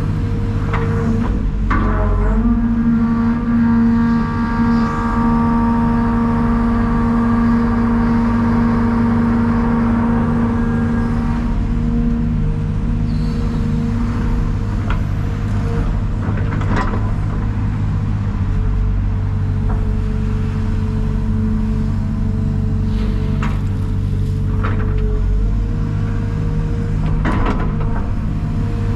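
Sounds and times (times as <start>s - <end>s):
diesel engine running: 0.0s - 28.9s.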